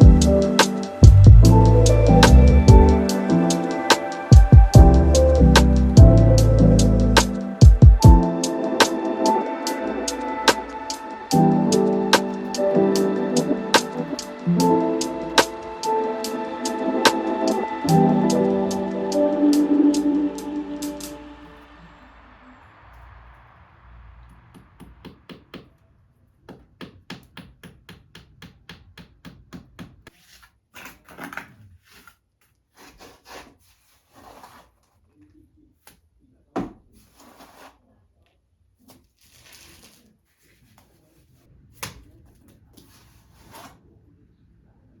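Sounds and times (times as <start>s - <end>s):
trowel scraping plaster: 30.0s - 36.0s, 36.8s - 37.9s, 38.8s - 43.8s.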